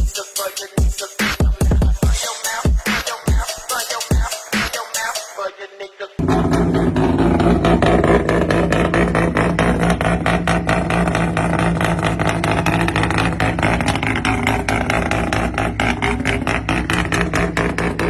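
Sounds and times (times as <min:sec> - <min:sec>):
car engine idling: 0:06.2 - 0:18.0.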